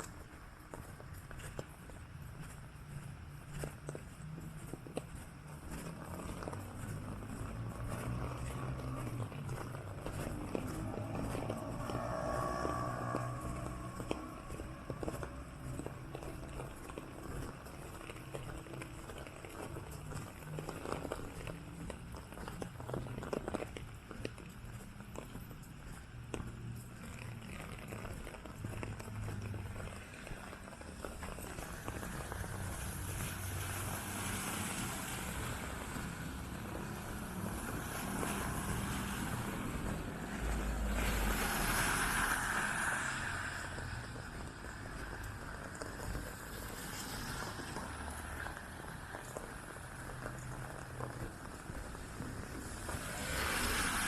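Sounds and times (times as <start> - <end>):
city traffic hum: 0.0 - 54.0
walking footsteps: 0.0 - 54.0
vehicle passing close: 5.7 - 17.3, 31.4 - 49.2
tyres hissing on wet road: 5.7 - 54.0.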